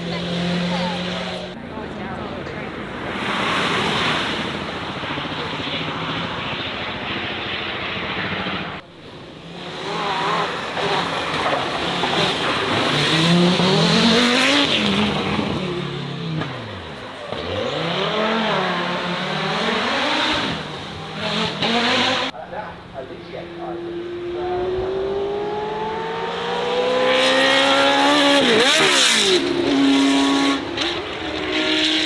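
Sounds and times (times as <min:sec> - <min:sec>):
racing car engine revving: 0:00.0 - 0:32.0.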